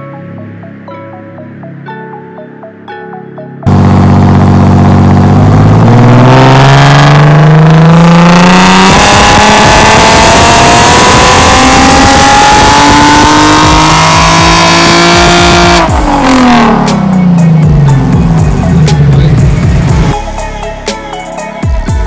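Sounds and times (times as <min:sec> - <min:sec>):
car engine revving on dyno: 0:03.7 - 0:17.4.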